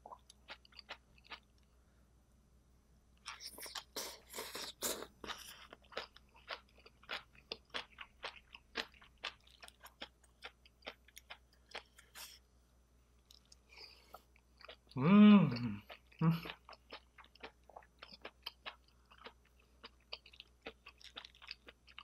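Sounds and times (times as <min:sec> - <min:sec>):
wet chewing: 0:15.5 - 0:22.0.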